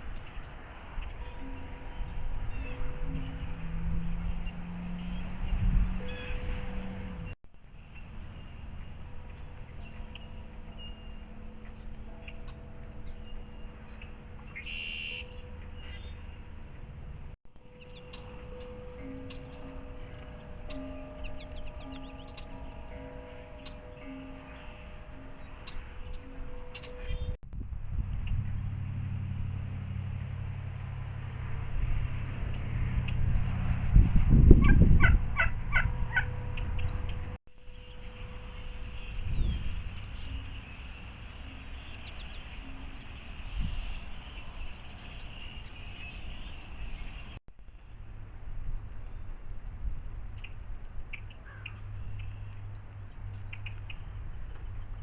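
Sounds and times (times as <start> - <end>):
bird calling high notes: 0.0 - 16.7, 17.5 - 27.4, 34.5 - 47.4
outdoor background noise: 0.0 - 55.0
soft background music: 17.6 - 27.4
turkey gobbling: 34.6 - 36.4.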